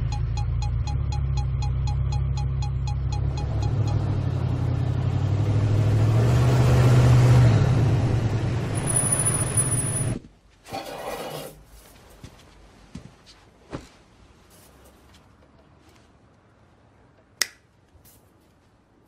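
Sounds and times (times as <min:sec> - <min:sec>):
vehicle engine rumbling: 0:00.0 - 0:10.4.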